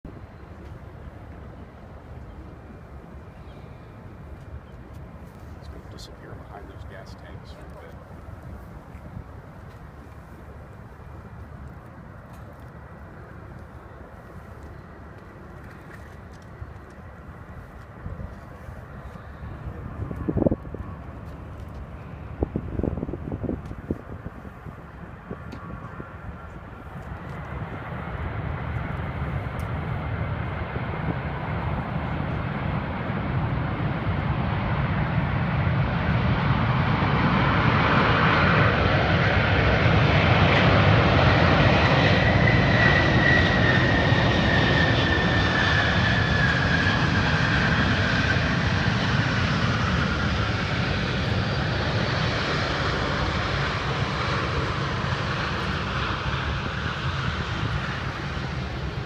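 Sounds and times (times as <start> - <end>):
high jet engine whine: 0.1 - 59.0
jet plane landing: 0.1 - 59.0.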